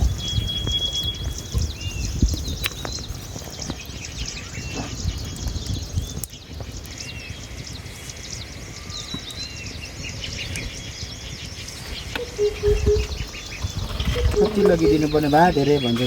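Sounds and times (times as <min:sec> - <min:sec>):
birds chirping: 0:00.0 - 0:16.0
rising and falling bird calls: 0:10.4 - 0:16.0.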